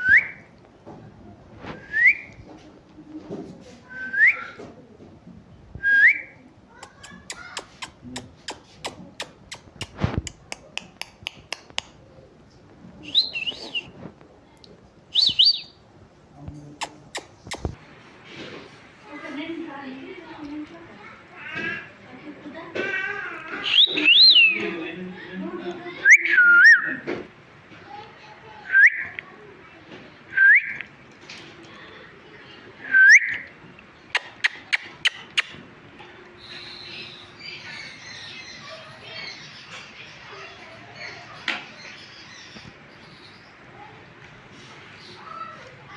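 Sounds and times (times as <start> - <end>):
parrot chattering: 6.8 - 10.8, 34.1 - 35.6
parrot whistled chirps: 15.1 - 15.8.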